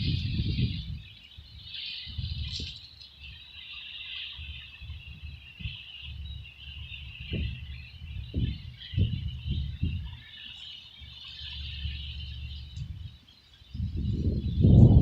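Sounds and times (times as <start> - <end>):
low thumps and rumbles: 6.1 - 10.2, 13.8 - 15.0.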